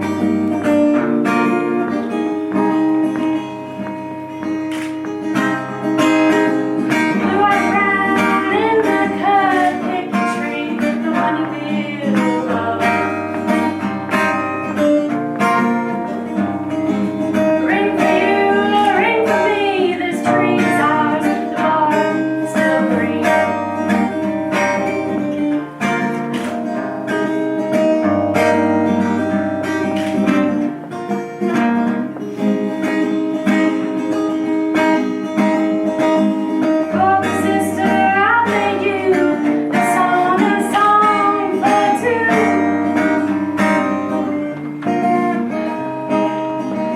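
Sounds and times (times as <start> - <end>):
acoustic guitar: 0.0 - 46.9
woman singing: 6.3 - 14.3, 17.3 - 25.6, 36.6 - 46.5.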